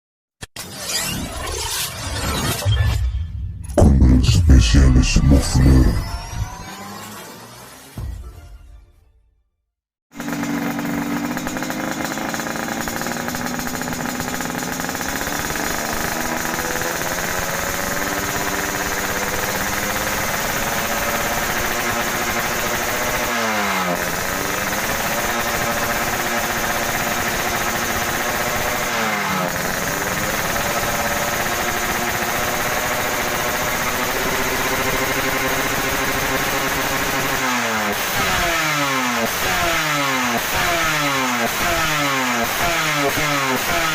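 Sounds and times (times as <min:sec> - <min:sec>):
two-stroke motorcycle engine running: 0:10.1 - 0:43.9.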